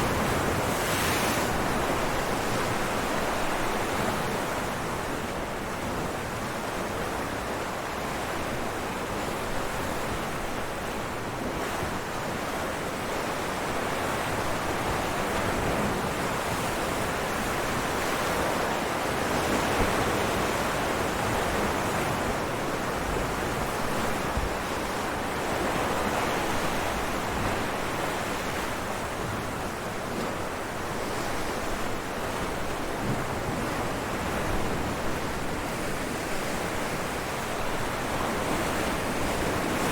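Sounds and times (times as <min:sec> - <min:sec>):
ocean waves breaking on rocks: 0:00.0 - 0:05.0, 0:14.1 - 0:39.9.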